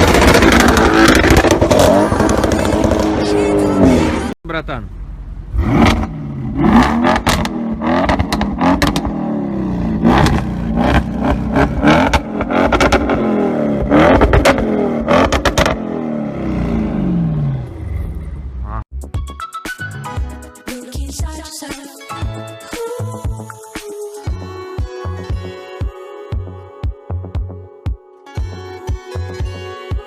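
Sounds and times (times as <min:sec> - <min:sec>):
exhaust cracks: 0:00.0 - 0:04.0, 0:05.5 - 0:18.8
car engine revving: 0:00.0 - 0:04.4, 0:05.1 - 0:18.8.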